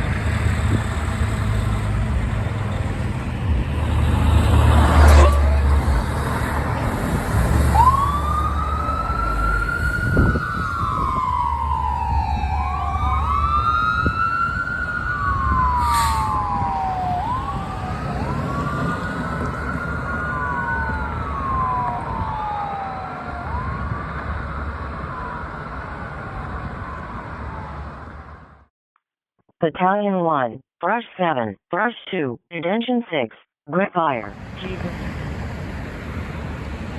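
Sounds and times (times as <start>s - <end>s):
low engine rumble: 0.0s - 28.6s
emergency sirens wailing: 0.0s - 28.7s.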